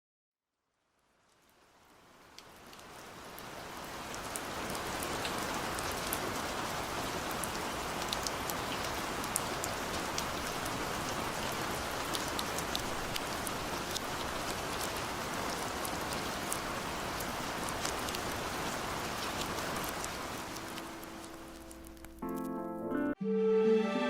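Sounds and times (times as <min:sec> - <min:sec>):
steady rain with drop ticks: 0:00.6 - 0:22.6.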